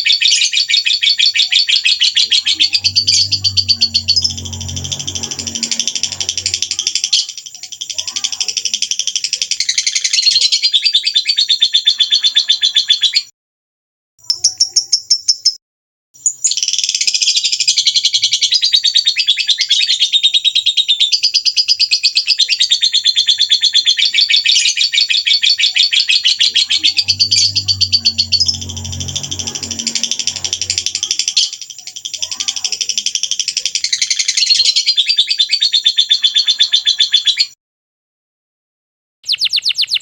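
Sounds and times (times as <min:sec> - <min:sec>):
songbird trilling: 0:00.2 - 0:13.2, 0:23.4 - 0:37.4, 0:39.3 - 0:40.0.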